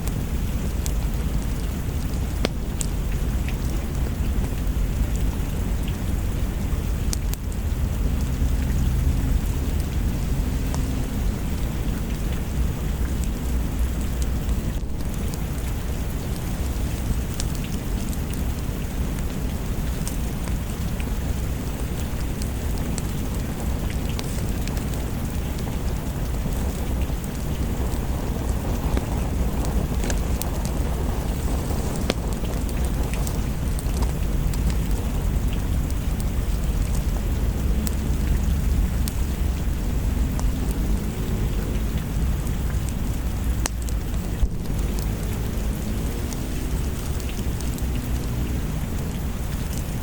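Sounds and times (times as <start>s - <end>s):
steady rain: 0.0s - 50.0s
wood fire crackling: 0.0s - 50.0s
distant thunder rumbling: 0.4s - 49.0s
small sharp ticks: 22.4s - 36.2s.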